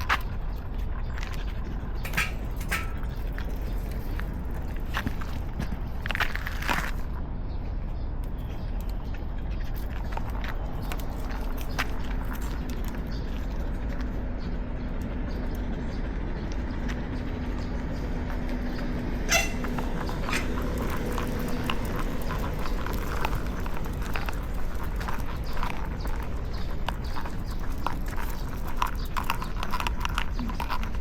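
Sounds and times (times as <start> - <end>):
footsteps on pavement: 0.0 - 7.2, 16.4 - 31.0
low street rumble: 0.0 - 31.0.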